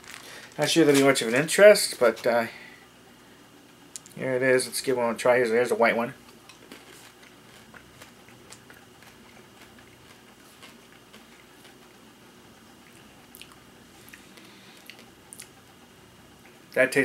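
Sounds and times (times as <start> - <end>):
faint chewing of candy: 6.3 - 15.7.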